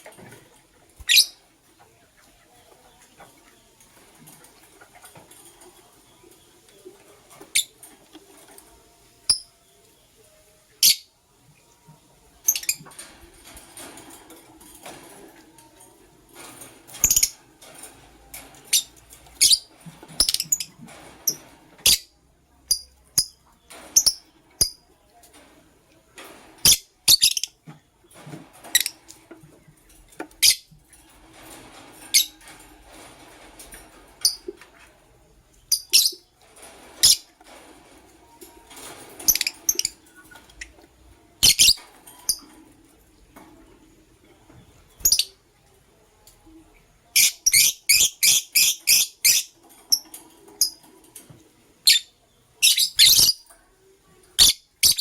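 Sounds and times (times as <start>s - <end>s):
lovebirds chirping: 51.9s - 53.5s.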